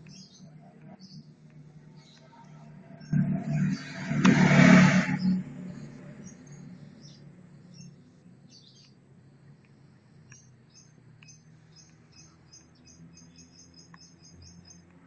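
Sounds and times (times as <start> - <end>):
low steady hum: 0.0 - 12.2.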